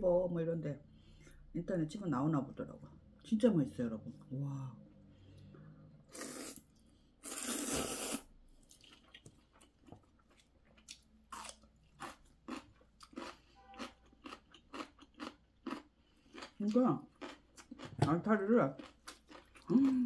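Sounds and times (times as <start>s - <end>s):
noodles slurped: 6.1s - 9.1s
crunchy chewing: 7.3s - 18.0s, 18.8s - 20.0s.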